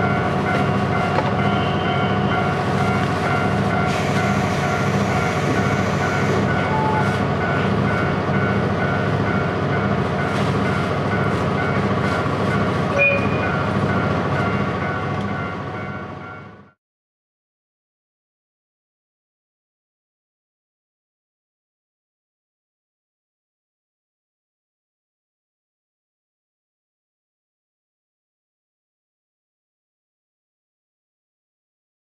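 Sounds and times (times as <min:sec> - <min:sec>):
train interior rumble: 0:00.0 - 0:16.7.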